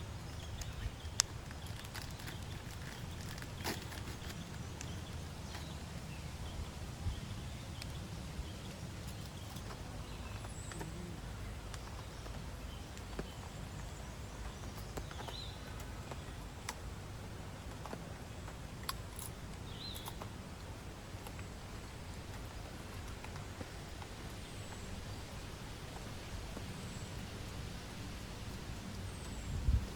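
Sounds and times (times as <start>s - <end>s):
steady rain hiss: 0.0s - 29.9s.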